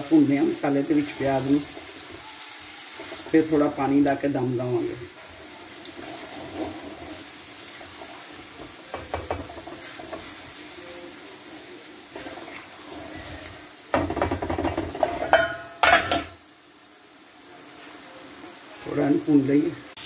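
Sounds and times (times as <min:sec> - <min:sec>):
onions sizzling in oil: 0:00.0 - 0:20.0
spatula scraping a pan: 0:00.4 - 0:04.2, 0:04.9 - 0:16.3.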